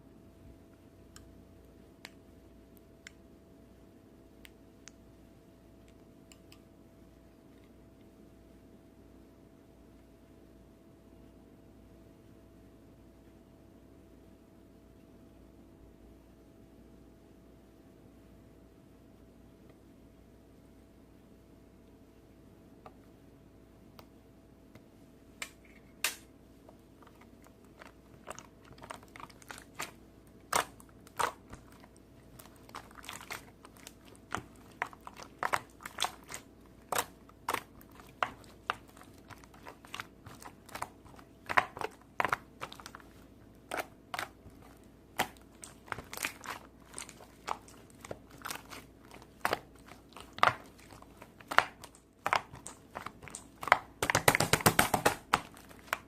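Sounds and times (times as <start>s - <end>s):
crunchy slime crackling: 26.8s - 56.0s.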